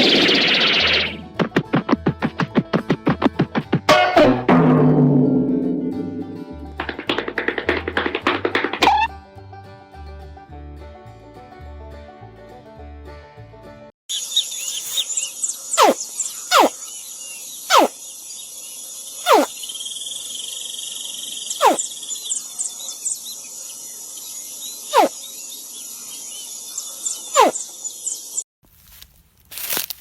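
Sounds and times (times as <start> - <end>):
birds chirping: 14.1 - 28.4
crickets chirping: 14.1 - 28.4
young animal whistle-like calls: 14.6 - 16.8, 17.7 - 17.9, 19.2 - 19.5, 21.5 - 21.9.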